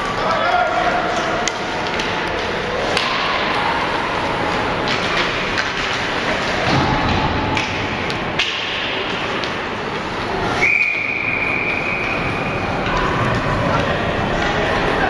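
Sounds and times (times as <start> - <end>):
ice rink background noise: 0.0 - 15.0
hockey sticks and puck knocking: 1.1 - 3.4, 4.8 - 10.2.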